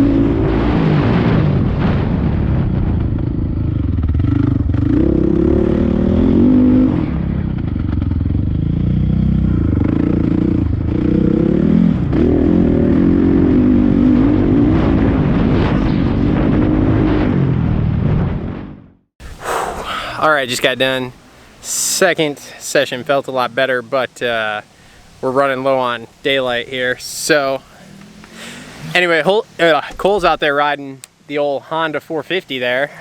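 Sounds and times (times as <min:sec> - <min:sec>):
dirt bike engine revving: 0:00.0 - 0:18.7, 0:27.4 - 0:30.4.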